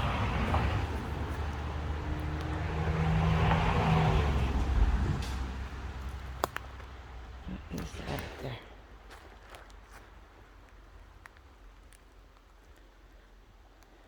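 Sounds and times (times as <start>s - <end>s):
vehicle passing on road: 0.0s - 8.3s.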